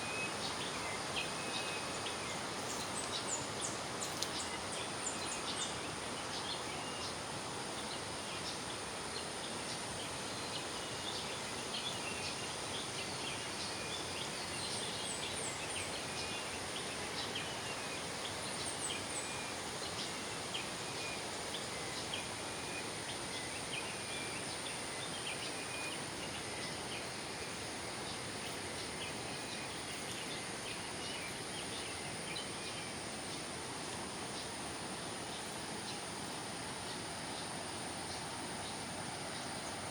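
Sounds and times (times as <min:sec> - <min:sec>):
river water rushing: 0:32.9 - 0:39.9.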